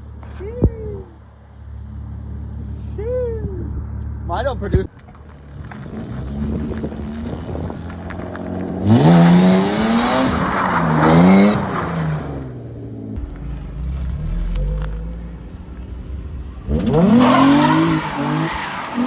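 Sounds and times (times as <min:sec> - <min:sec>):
car engine revving: 0:05.4 - 0:19.0
tyres screeching: 0:13.2 - 0:19.0.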